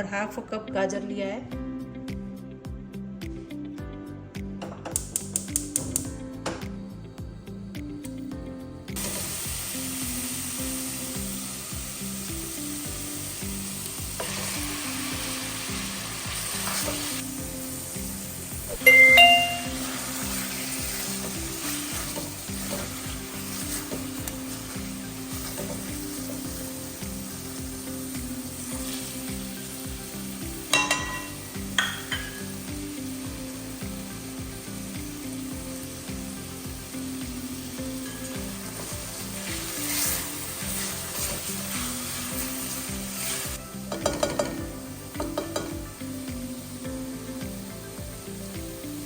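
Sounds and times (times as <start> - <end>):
food sizzling in a hot pan: 7.0 - 49.0
metal spoon clinking on pan: 18.8 - 19.7, 30.7 - 32.5, 43.9 - 44.6, 45.2 - 45.8.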